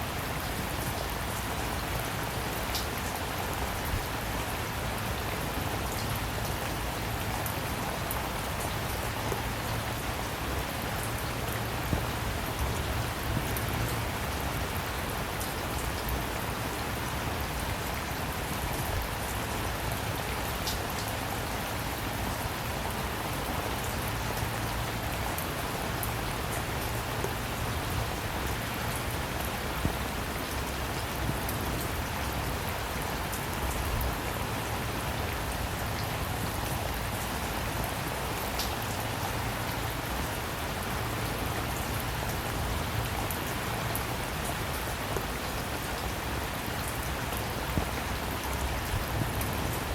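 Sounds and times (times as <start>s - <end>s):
rain pattering: 0.0s - 49.9s.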